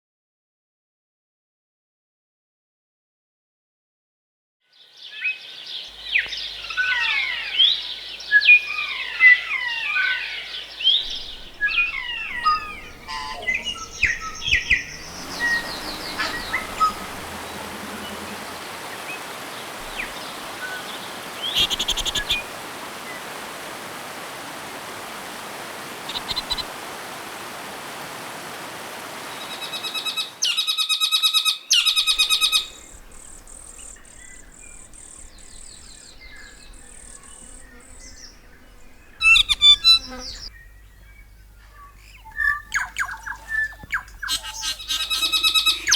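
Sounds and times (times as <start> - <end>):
forest birds singing: 4.7 - 26.8, 28.9 - 45.9
steady rushing hiss: 6.0 - 30.4, 32.0 - 40.5.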